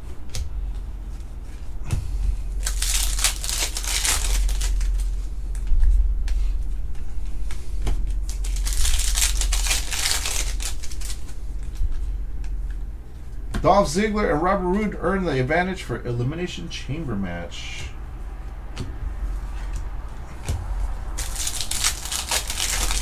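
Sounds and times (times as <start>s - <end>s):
steady low hum: 0.0s - 23.0s
plastic crinkling and rustling: 2.5s - 6.0s, 8.0s - 12.0s, 20.3s - 23.0s.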